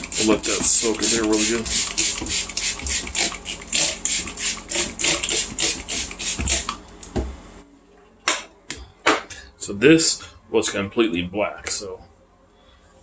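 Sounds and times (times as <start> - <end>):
spray bottle squirting: 0.0 - 6.8.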